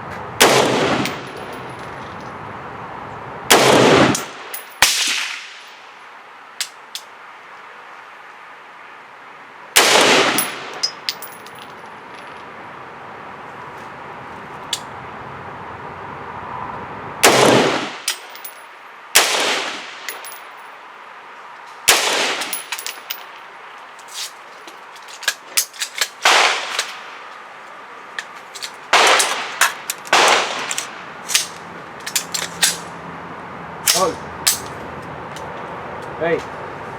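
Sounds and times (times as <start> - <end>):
rifle shots: 0.4 - 1.3, 3.5 - 5.6, 9.8 - 10.8, 17.2 - 18.1, 19.2 - 20.1, 21.9 - 22.8, 26.1 - 27.2, 28.9 - 31.5.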